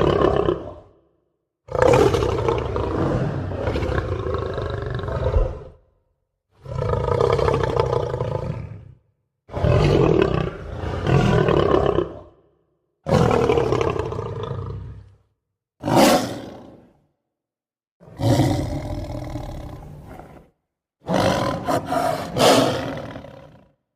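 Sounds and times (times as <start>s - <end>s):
lion roaring: 0.0s - 1.0s, 1.7s - 5.9s, 6.6s - 15.2s, 15.8s - 17.0s, 18.0s - 23.8s.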